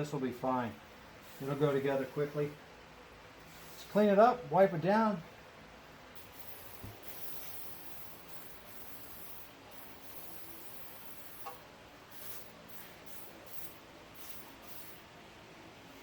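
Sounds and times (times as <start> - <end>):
hissing and rubbing while cleaning: 1.2 - 2.6, 3.4 - 4.1, 6.2 - 15.1.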